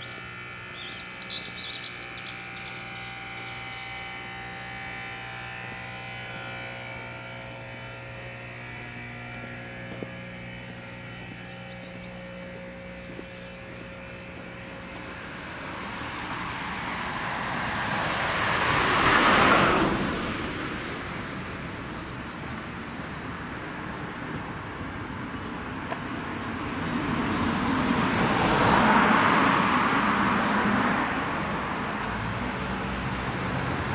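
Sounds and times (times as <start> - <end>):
steady multi-tone hum: 0.0 - 28.8
car passing by: 15.1 - 22.4, 26.6 - 33.9.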